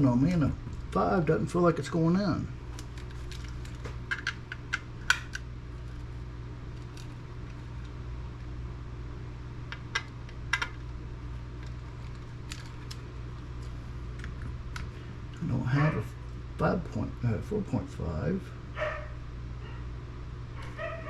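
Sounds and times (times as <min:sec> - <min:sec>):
steady low hum: 0:00.0 - 0:21.0
screwdriver bits clicking and tapping: 0:04.1 - 0:05.3.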